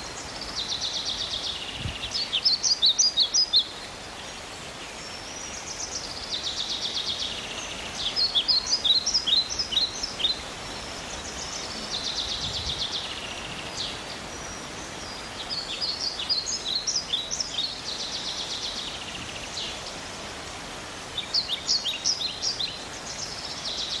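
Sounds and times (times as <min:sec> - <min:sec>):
songbird singing trills: 0:00.0 - 0:03.9, 0:05.1 - 0:19.8
outdoor background noise: 0:00.0 - 0:24.0.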